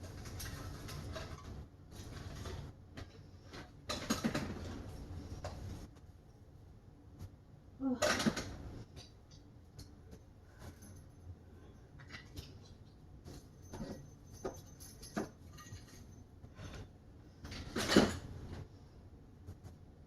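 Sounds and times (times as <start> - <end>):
decorations clinking and tapping: 9.0 - 16.8.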